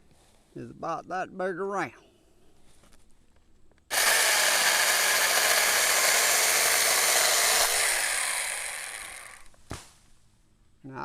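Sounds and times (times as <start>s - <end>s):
motor winding down: 3.9s - 9.5s
mini chainsaw cutting branch: 3.9s - 9.8s.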